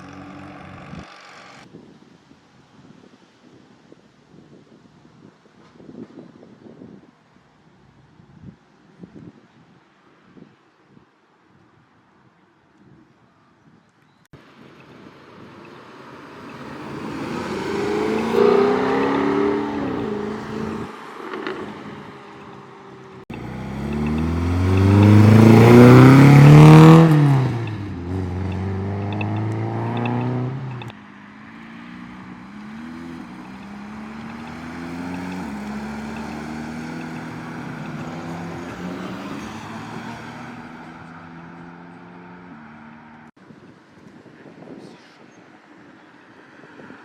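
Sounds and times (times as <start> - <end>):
car pulling away with upshifts: 15.3 - 43.3
sports car engine revving hard: 16.6 - 20.9, 23.3 - 30.9.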